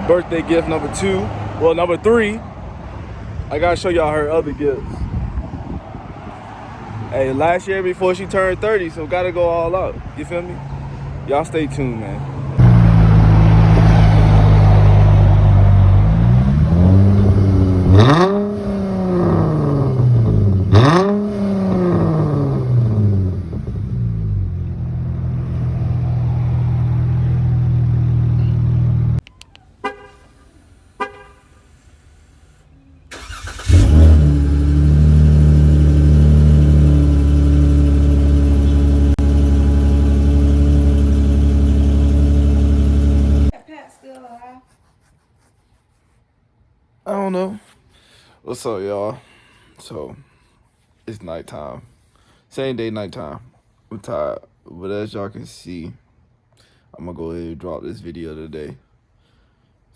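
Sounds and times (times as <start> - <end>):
loud car engine drone: 11.6 - 29.2, 33.7 - 43.5.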